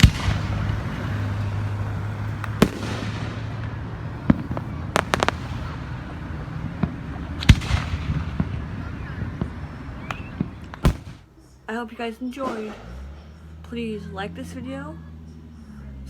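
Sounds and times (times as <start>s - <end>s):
fireworks bangs: 0.0s - 11.3s.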